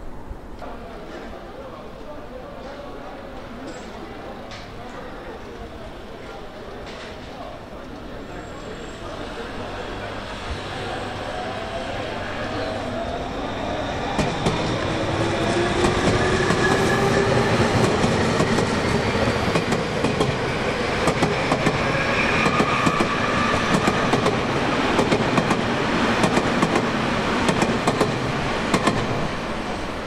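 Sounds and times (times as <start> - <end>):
train running noise: 8.0 - 30.0.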